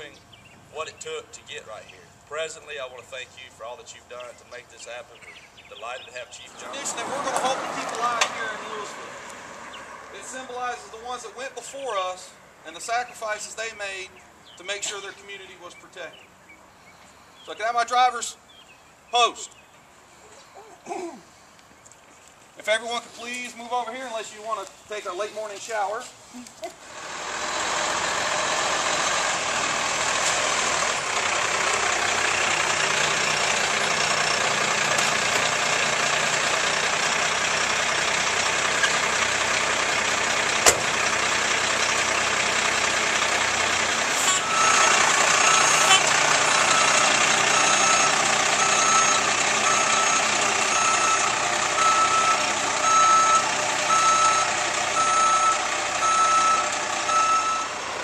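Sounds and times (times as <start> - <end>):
fire trucks running: 0.0 - 16.4, 23.1 - 58.0
truck backup alarm beeping: 44.1 - 57.9.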